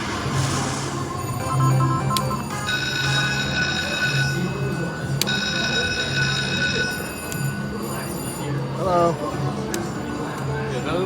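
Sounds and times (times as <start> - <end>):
slot machine game music: 1.1 - 7.8.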